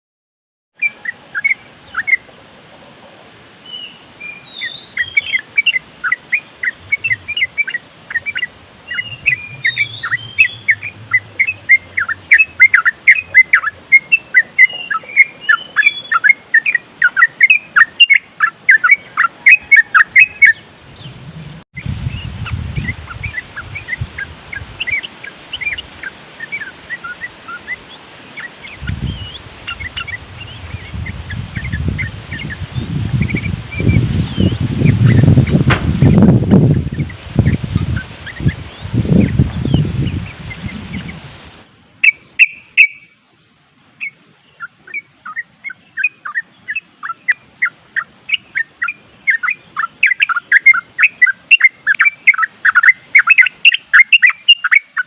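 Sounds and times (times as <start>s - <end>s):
bird song of rolling chirps: 0.8s - 55.0s
low wind rumble: 1.2s - 44.5s.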